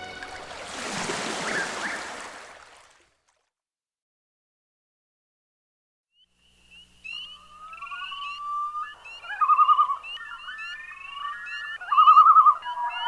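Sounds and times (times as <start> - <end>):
birds singing: 1.1 - 2.4, 6.4 - 13.0.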